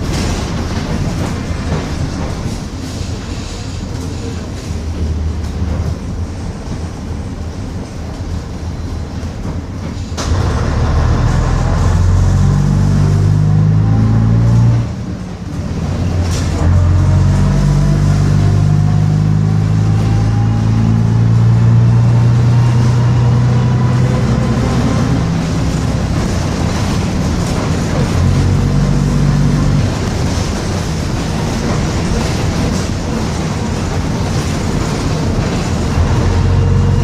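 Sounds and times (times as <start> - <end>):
bus diesel engine: 0.0 - 37.0
engine whine: 10.2 - 37.0.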